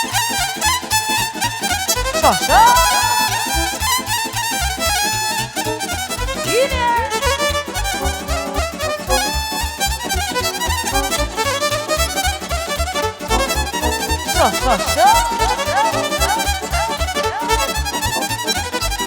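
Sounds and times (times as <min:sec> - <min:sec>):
fiddle playing fast melody: 0:00.0 - 0:19.0
steady bass beat: 0:02.0 - 0:04.2, 0:06.3 - 0:19.0
person calling out: 0:02.2 - 0:03.6, 0:06.5 - 0:07.4, 0:14.3 - 0:18.1.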